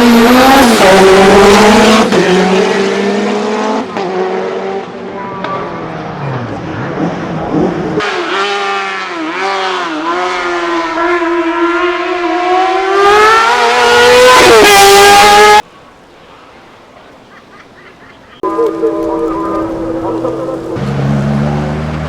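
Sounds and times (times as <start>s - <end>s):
race car engine at high revs: 0.0s - 15.6s, 18.5s - 22.0s
faint background noise: 15.6s - 20.8s.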